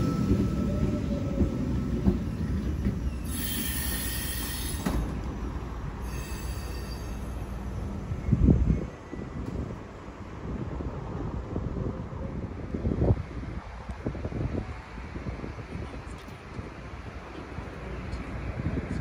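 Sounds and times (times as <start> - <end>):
electric train rumbling: 0.0 - 19.0
brake and wheel squeal: 2.7 - 5.1, 6.0 - 7.6.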